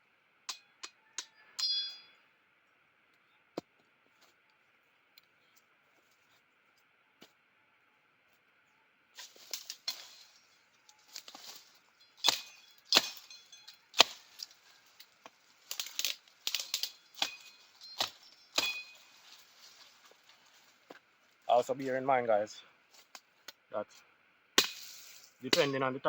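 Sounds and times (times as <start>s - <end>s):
sticks being chopped: 9.2s - 10.3s, 11.0s - 19.4s, 24.6s - 25.8s.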